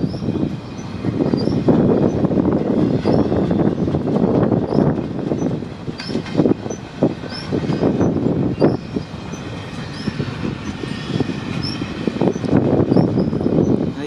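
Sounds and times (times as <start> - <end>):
train wheels clattering on rails: 0.0 - 14.0
high squeaks: 4.7 - 13.8.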